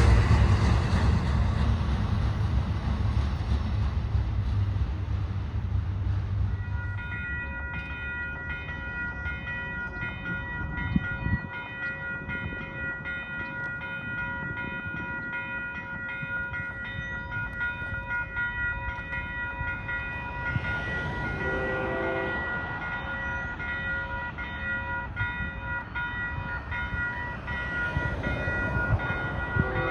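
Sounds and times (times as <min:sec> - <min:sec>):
train rumbling on rails: 0:00.0 - 0:29.9
steady high ringing tone: 0:06.5 - 0:29.9.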